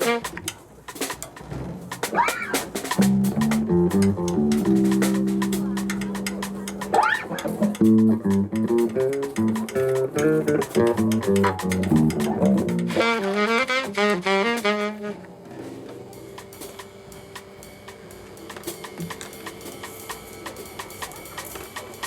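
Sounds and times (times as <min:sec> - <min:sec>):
saxophone melody: 0:00.0 - 0:00.5, 0:12.6 - 0:15.4
bass and guitar: 0:03.0 - 0:13.0.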